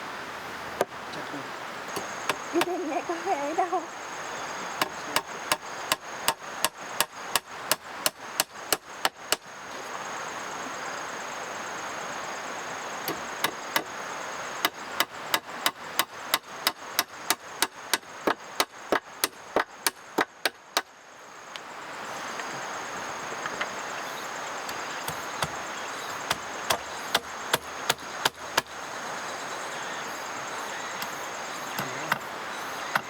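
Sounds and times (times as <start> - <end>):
steady hiss with high tone: 0.0 - 33.0
hand tool chopping strikes: 4.8 - 9.4, 24.7 - 25.6, 26.3 - 28.7.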